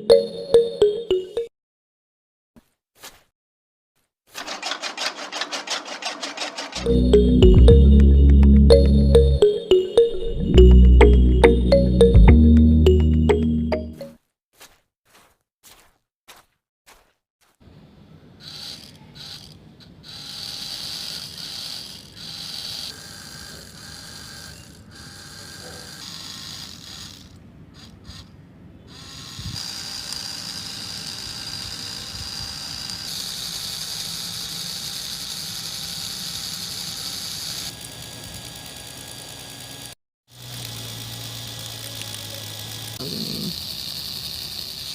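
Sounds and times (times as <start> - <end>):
small electric motor whirring: 4.3 - 6.9, 18.4 - 44.9.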